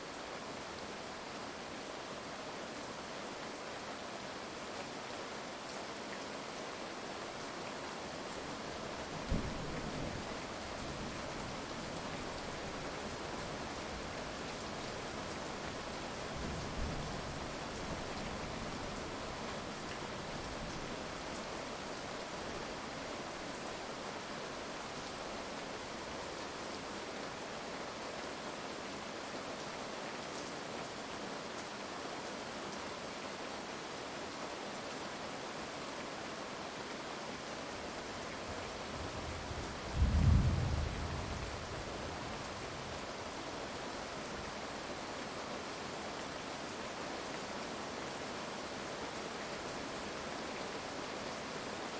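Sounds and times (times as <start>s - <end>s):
heavy rain: 0.0s - 51.9s
thunder rumbling: 39.9s - 41.7s.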